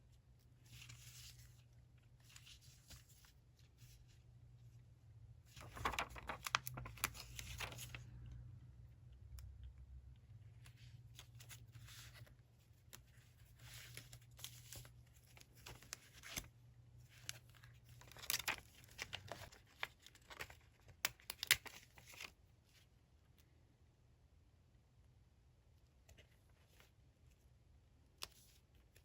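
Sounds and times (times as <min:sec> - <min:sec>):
paper rustling and tearing: 0:05.5 - 0:08.0.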